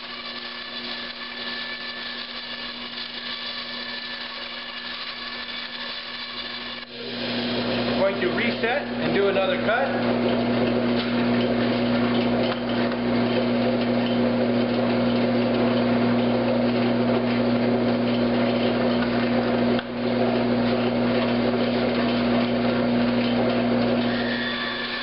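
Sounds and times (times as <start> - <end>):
bandsaw cutting wood: 0.0 - 11.2, 24.0 - 25.0.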